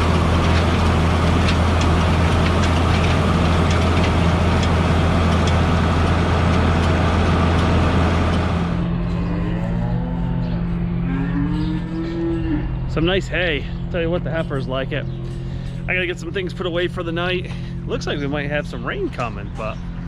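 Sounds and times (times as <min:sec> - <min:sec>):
heavy engine idling: 0:00.0 - 0:09.0
cow mooing: 0:09.1 - 0:12.9.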